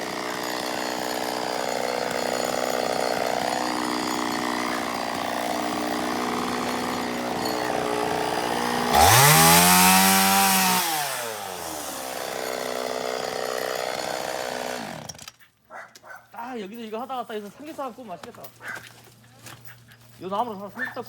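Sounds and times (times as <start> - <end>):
chainsaw idling and revving: 0.0 - 15.4.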